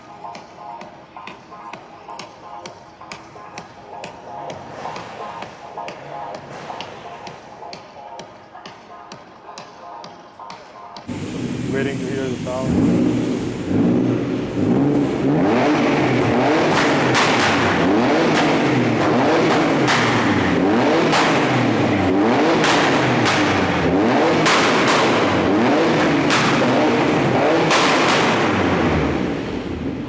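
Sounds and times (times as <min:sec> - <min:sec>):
car engine revving: 0:11.1 - 0:30.0
sharp cracks: 0:15.5 - 0:29.2.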